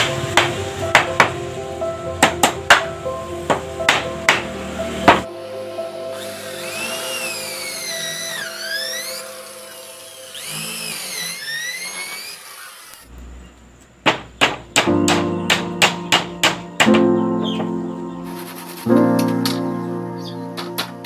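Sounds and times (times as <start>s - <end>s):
background music: 0.0s - 11.4s, 14.7s - 21.0s
electric router cutting wood: 6.1s - 13.1s.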